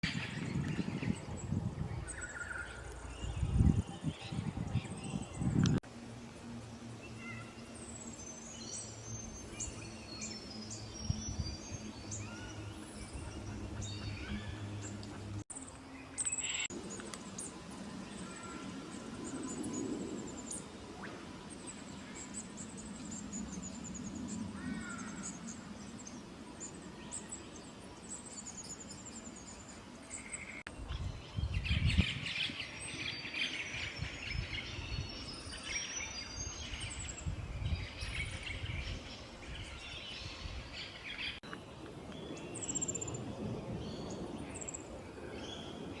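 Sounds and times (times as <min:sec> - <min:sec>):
small birds chirping and trilling: 0:00.0 - 0:05.8, 0:06.9 - 0:46.0.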